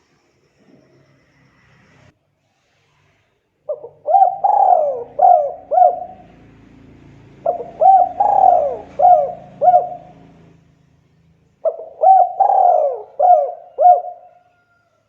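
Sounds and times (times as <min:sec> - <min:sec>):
dove cooing: 0:03.7 - 0:10.6, 0:11.6 - 0:14.8.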